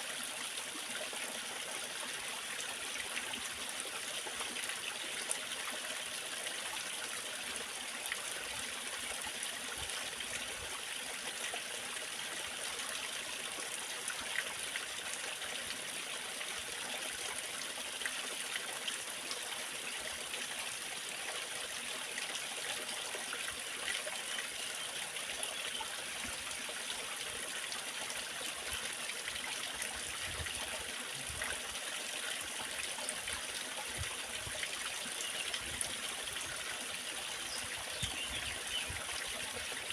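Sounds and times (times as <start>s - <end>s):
water trickling: 17.1s - 39.9s.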